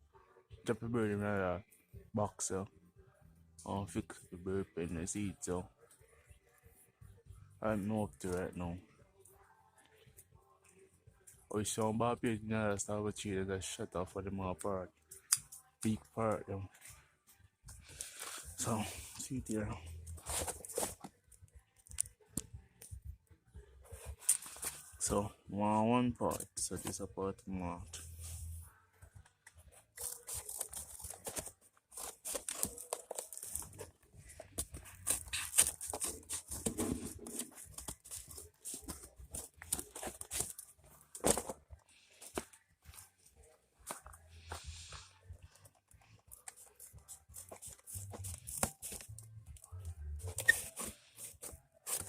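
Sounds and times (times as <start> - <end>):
clicks scrapes and rustling: 29.5 - 52.0.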